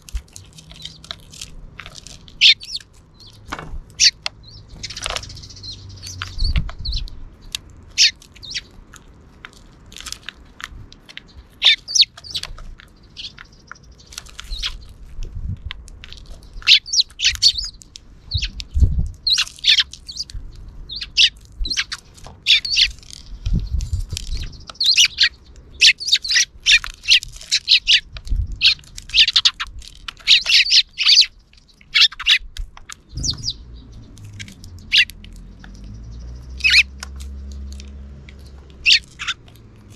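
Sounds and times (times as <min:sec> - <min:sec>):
sparrows chirping: 0:00.0 - 0:39.9
dull low thumps: 0:33.1 - 0:34.1.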